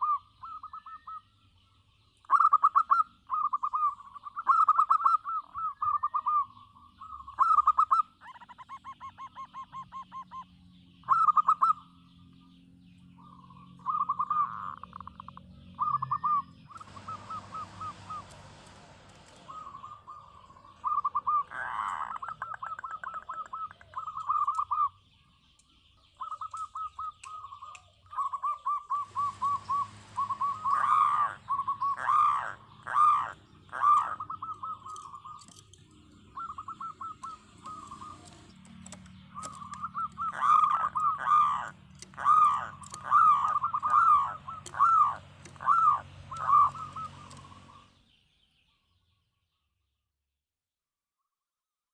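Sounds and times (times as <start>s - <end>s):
dove cooing: 0.0s - 1.3s, 2.3s - 12.1s, 13.2s - 25.0s, 26.1s - 48.0s
rising and falling bird notes: 13.2s - 49.0s.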